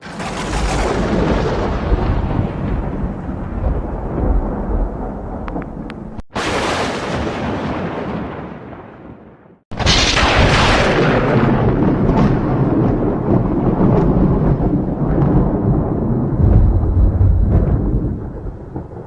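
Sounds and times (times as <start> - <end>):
sharp thunderclap: 0.0 - 19.0
thunder rolling: 0.0 - 19.0.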